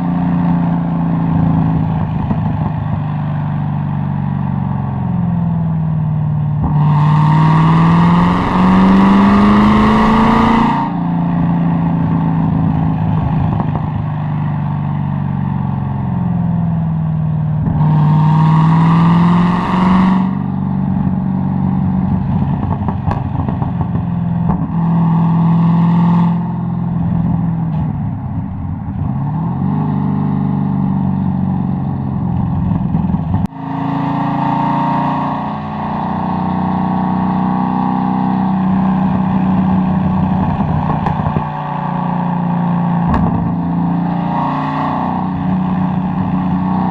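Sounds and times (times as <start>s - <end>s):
car engine revving hard: 6.6s - 12.2s, 17.6s - 20.5s, 33.4s - 46.9s
exhaust pops and crackles: 22.0s - 24.8s, 40.4s - 41.6s, 43.1s - 43.5s.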